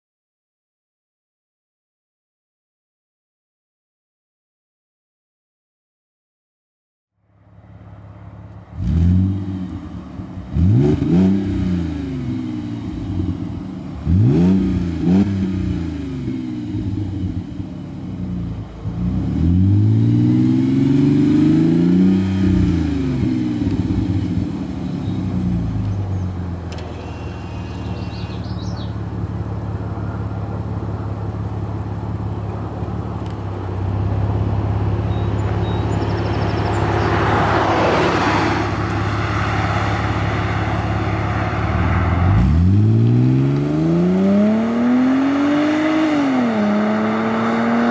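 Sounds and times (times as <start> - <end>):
car exhaust revving: 8.0 - 47.9
engine idling: 23.7 - 37.0, 38.9 - 42.7.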